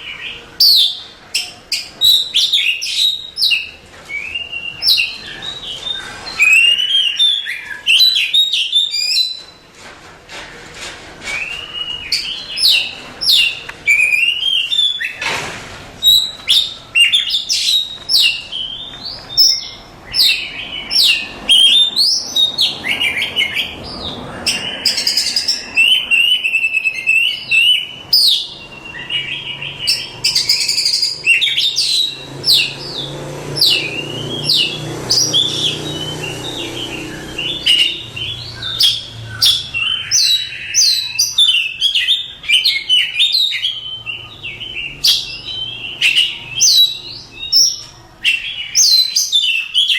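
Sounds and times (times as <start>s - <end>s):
bird singing whistled phrases: 0.0s - 9.6s, 11.3s - 15.2s, 16.0s - 23.8s, 24.4s - 33.0s.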